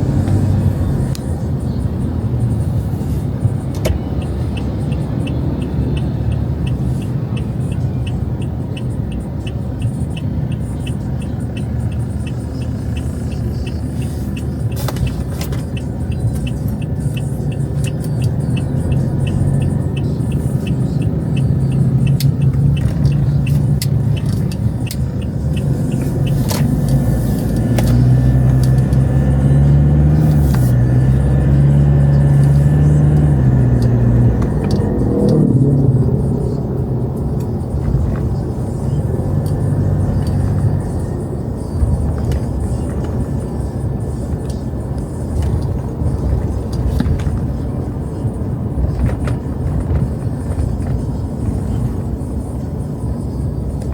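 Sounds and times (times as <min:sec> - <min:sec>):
vehicle engine pulling away: 0:00.0 - 0:01.2, 0:17.5 - 0:42.9
traffic rumble: 0:00.0 - 0:53.9.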